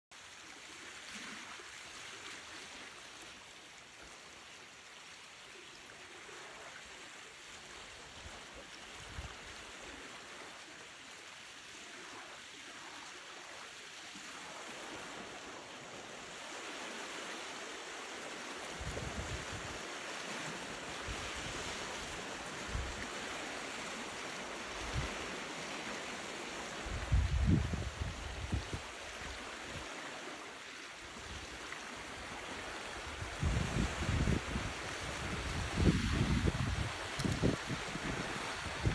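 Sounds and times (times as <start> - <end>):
small waves on shoreline: 0.1 - 38.9
wind on microphone: 18.7 - 19.8, 24.7 - 25.3, 26.8 - 29.9, 33.0 - 38.9.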